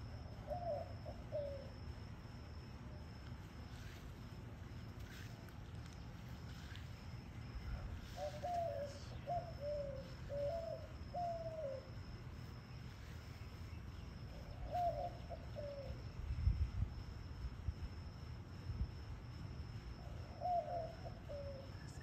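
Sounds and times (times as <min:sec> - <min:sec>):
bird cooing: 0:00.1 - 0:01.8, 0:07.5 - 0:12.2, 0:14.3 - 0:16.1, 0:20.0 - 0:22.0.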